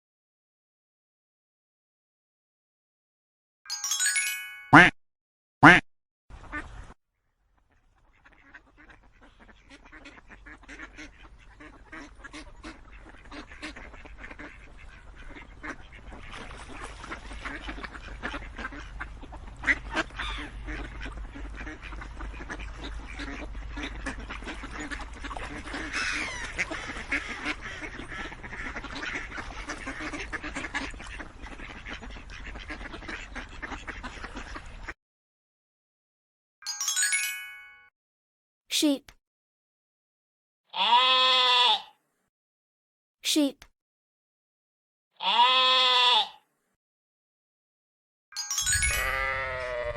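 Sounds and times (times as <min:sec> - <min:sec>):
short bright chime: 0:03.7 - 0:04.9, 0:36.7 - 0:37.9, 0:48.4 - 0:49.8
ducks quacking: 0:05.6 - 0:05.8, 0:07.7 - 0:35.0.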